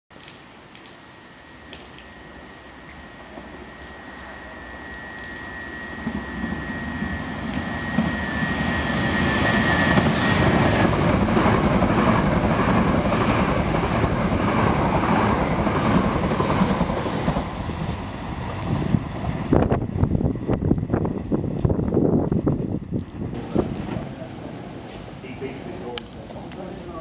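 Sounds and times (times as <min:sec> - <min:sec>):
rails singing high: 0:01.1 - 0:21.5
train rushing past: 0:02.1 - 0:27.0.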